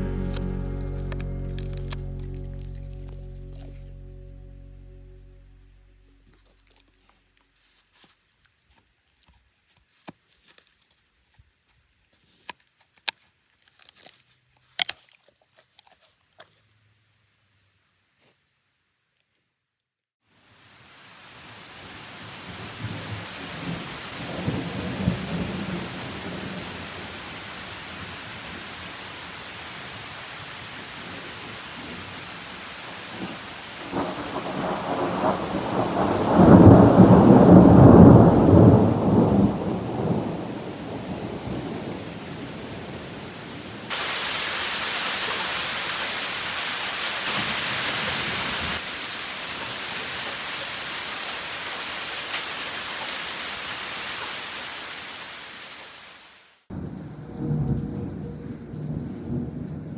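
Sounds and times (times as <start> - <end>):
heavy rain hiss: 0.0 - 2.8, 20.4 - 56.6
steady rain: 0.0 - 3.9, 20.3 - 59.9
thunder rumbling: 22.6 - 27.3, 33.1 - 43.9, 56.7 - 59.9.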